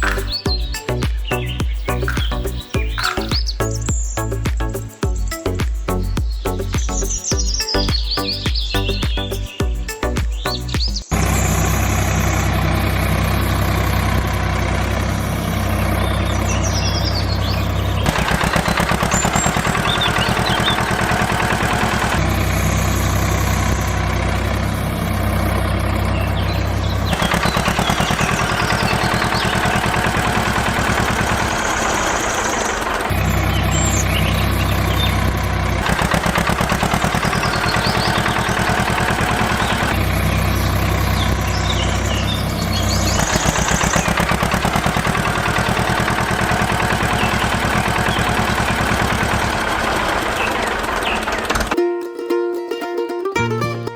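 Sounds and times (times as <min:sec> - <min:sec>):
faint bird chirps: 0:00.0 - 0:14.0
small engine humming and chugging: 0:10.5 - 0:51.8.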